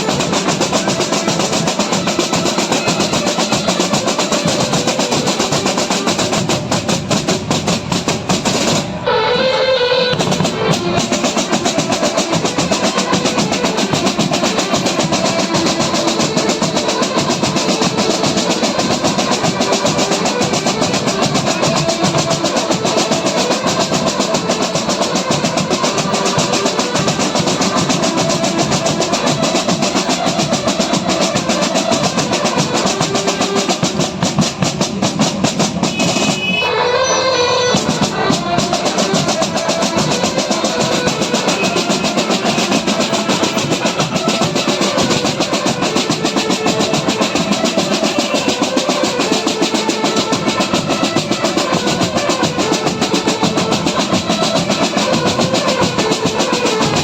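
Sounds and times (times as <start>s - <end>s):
fast dense drumming: 0.0s - 9.0s, 10.1s - 36.6s, 37.7s - 57.0s
band playing: 0.0s - 57.0s
pitched melody line: 35.9s - 57.0s.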